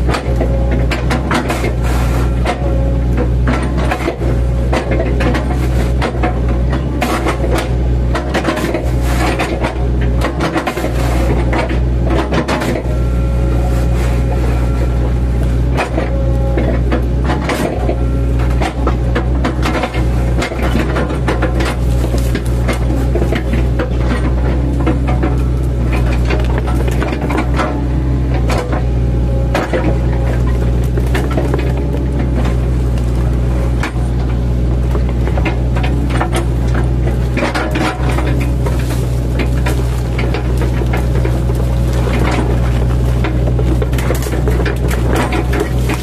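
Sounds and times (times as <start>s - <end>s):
diesel engine running under load: 0.0s - 46.0s
knocks and cracks of wood chipping: 15.7s - 27.8s, 29.5s - 34.2s, 34.9s - 46.0s.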